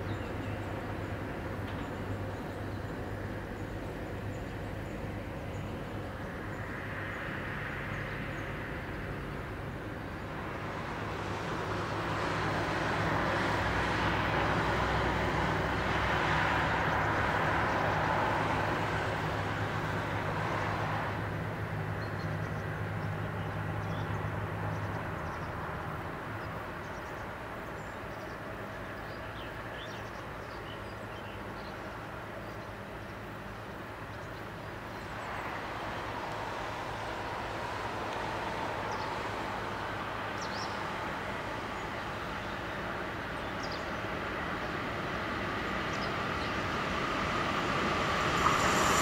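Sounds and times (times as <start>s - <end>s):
distant train rail noise: 31.4s - 49.0s.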